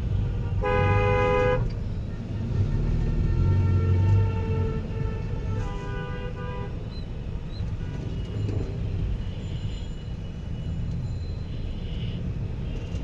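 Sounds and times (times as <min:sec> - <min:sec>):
car driving in traffic rumble: 0:00.0 - 0:13.0
vehicle horn tooting: 0:00.1 - 0:06.8.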